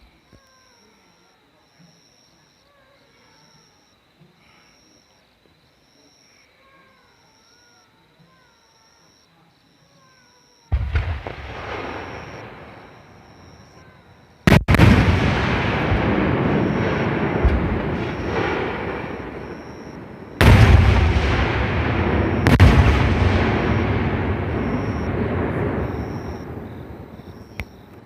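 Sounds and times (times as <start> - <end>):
firework shells booming: 10.7 - 13.8, 14.5 - 27.8.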